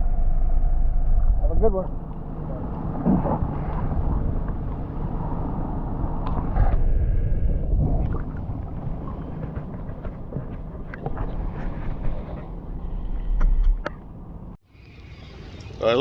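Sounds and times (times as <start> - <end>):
boat motor rumbling: 0.0 - 11.3
wind on microphone: 0.0 - 14.6.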